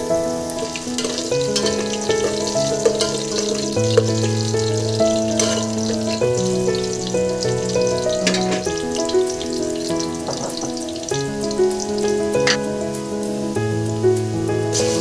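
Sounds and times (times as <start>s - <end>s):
instrumental music with held notes: 0.0s - 15.0s
onions sizzling in oil: 0.0s - 15.0s.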